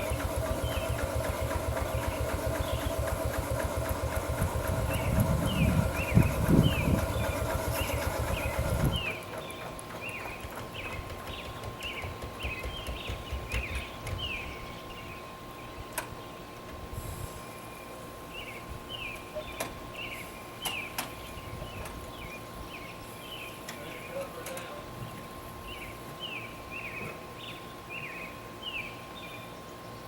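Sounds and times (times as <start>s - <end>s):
steam traction engine rumble: 0.0s - 12.3s.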